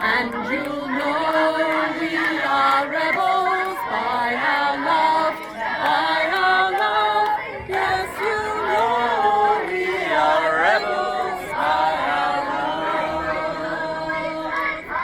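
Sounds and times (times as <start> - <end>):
group singing unaccompanied: 0.0 - 15.0.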